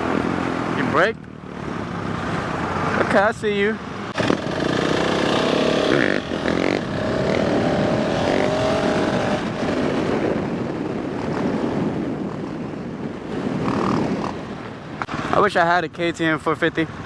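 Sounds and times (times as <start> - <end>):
dirt bike engine revving: 4.0 - 10.3.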